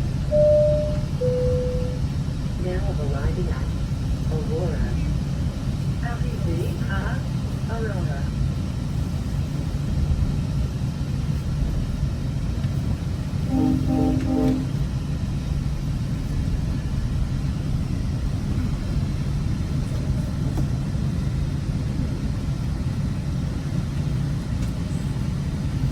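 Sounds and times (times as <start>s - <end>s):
train rumbling inside coach: 0.0s - 25.9s
train horn blasts: 13.4s - 15.0s.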